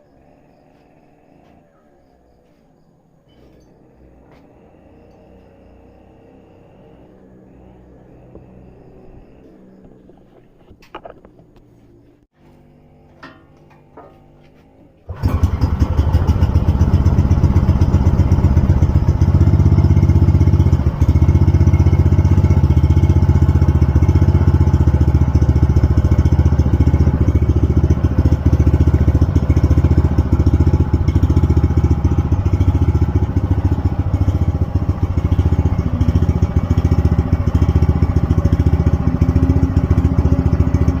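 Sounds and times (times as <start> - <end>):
water pump engine running: 15.0 - 41.0.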